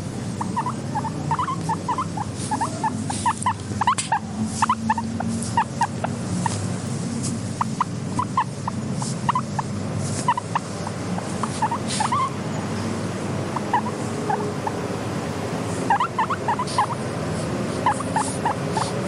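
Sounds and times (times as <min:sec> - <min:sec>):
guinea pig squeaking: 0:00.0 - 0:19.0.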